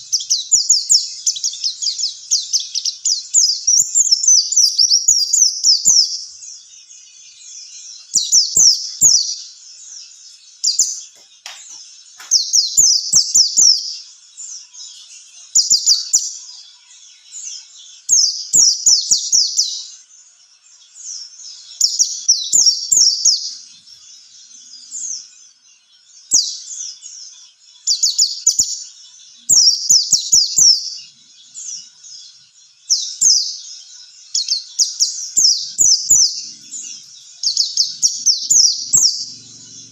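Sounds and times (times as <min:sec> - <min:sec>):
bird twittering: 0:10.6 - 0:14.0, 0:34.3 - 0:39.9.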